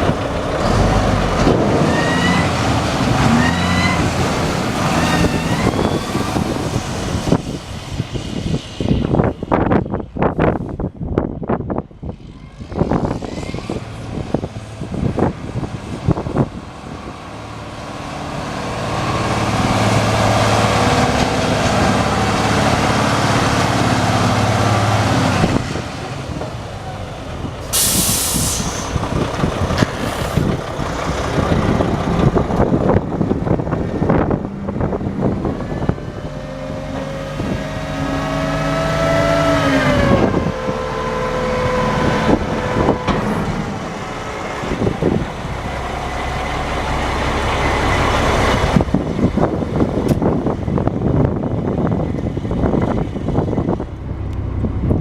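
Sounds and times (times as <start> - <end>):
diesel truck engine running: 0.0 - 55.0
air release hiss: 27.6 - 29.0.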